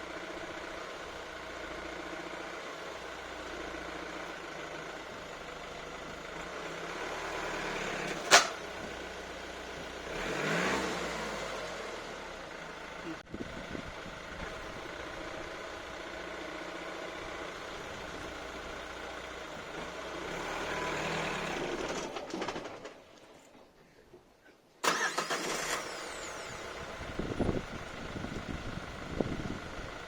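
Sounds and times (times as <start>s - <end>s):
car engine running: 24.9s - 30.0s.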